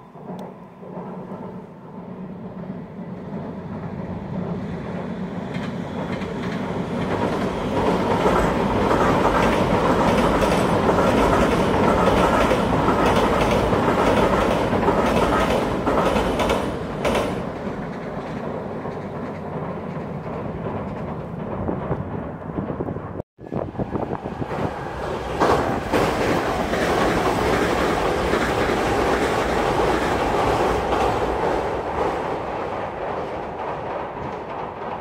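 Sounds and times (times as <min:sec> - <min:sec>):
electric train passing: 0:00.0 - 0:35.0
wheels clattering over rail joints: 0:05.4 - 0:23.2.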